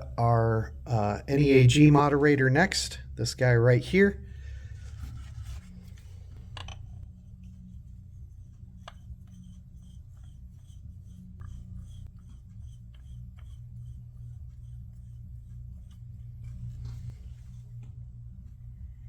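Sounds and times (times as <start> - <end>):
steady low hum: 0.0 - 19.0
rubbing: 4.6 - 17.8.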